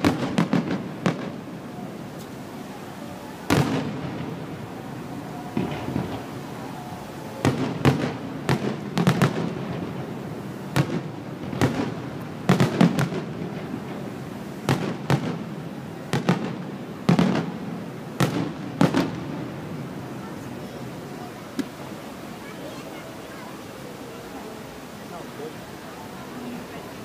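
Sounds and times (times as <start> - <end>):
firework shells bursting: 0.0 - 2.5, 3.4 - 10.1.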